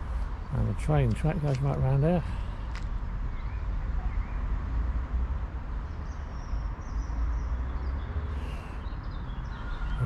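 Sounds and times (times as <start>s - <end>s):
faint birdsong chirping: 0.0s - 10.0s.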